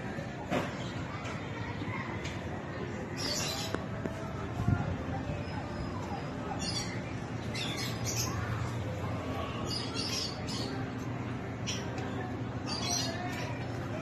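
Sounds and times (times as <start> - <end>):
birds chirping: 0.6 - 4.4, 5.2 - 14.0
steady low hum: 3.8 - 14.0.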